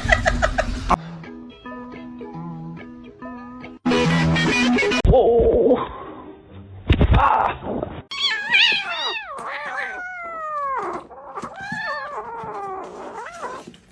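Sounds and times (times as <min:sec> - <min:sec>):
cat yowling: 0:08.1 - 0:13.9.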